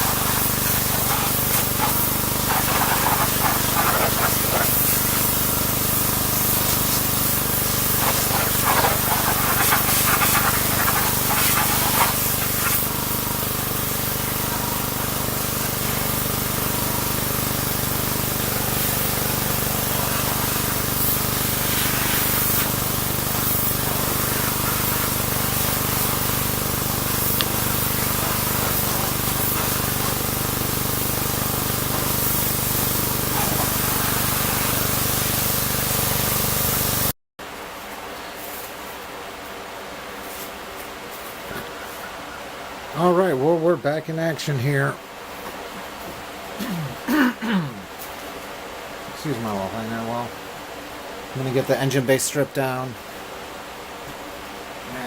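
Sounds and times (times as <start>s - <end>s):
water spray hissing: 0.0s - 37.1s
pressure washer humming: 0.0s - 37.2s.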